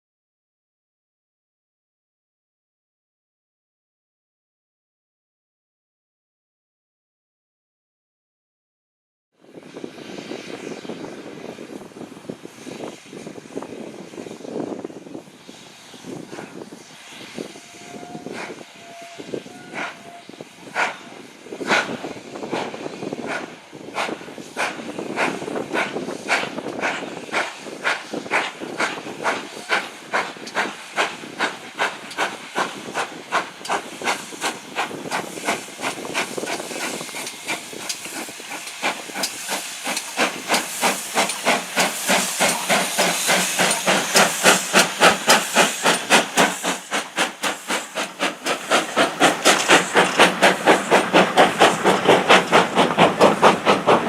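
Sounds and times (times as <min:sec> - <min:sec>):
steam locomotive chuffing: 0:09.7 - 0:54.0.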